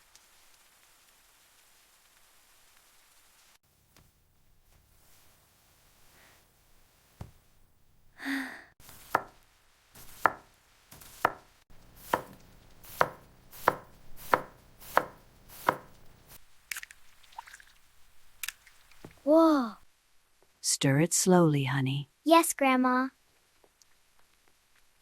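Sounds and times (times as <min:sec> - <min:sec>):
knife chopping on cutting board: 0:08.8 - 0:09.4, 0:10.0 - 0:16.2.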